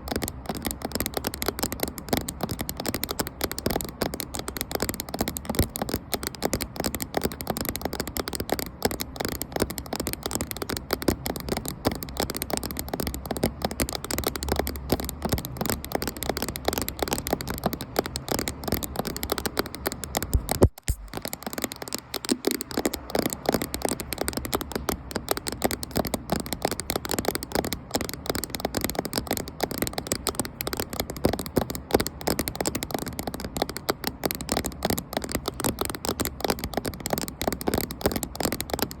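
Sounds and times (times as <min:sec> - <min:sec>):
fingernails tapping on camera: 0:00.0 - 0:39.0.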